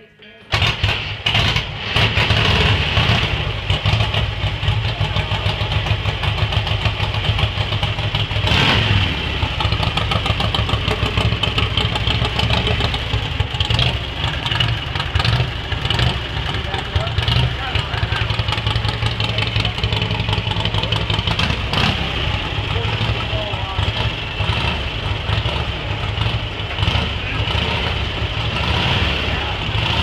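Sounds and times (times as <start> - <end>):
motorcycle engine idling: 3.3 - 28.6.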